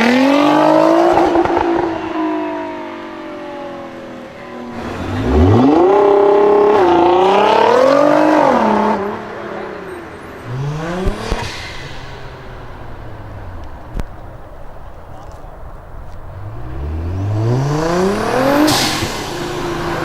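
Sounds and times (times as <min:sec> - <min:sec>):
car engine accelerating hard: 0:00.0 - 0:20.0
sharp exhaust cracks: 0:10.4 - 0:20.0.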